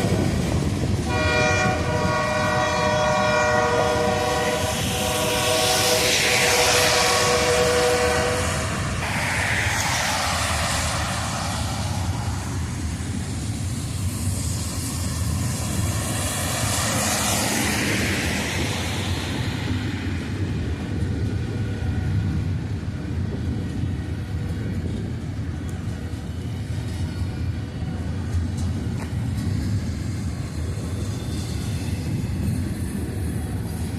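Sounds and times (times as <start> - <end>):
rushing hiss of wheels: 0.0 - 21.2, 28.3 - 33.9
locomotive engine rumble: 0.0 - 33.9
train horn: 1.0 - 8.9.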